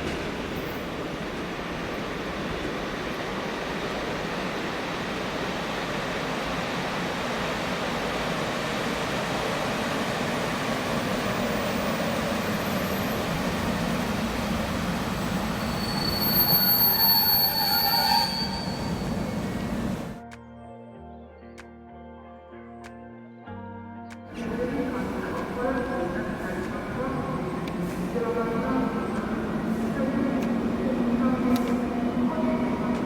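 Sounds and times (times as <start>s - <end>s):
train rumbling: 0.0s - 20.2s, 24.3s - 33.0s
metallic wheel squeal: 15.3s - 20.1s.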